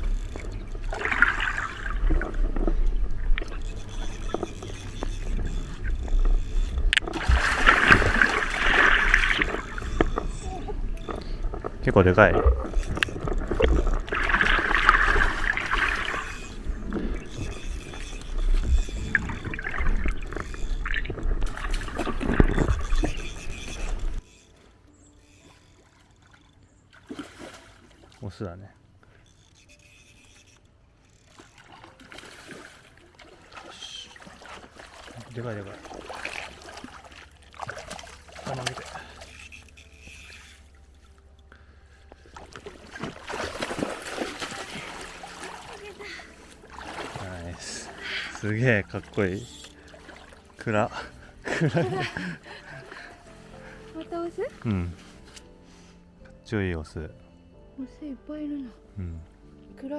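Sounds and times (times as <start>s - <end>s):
low steady hum: 0.0s - 28.0s
water sloshing and rumbling: 0.0s - 55.6s.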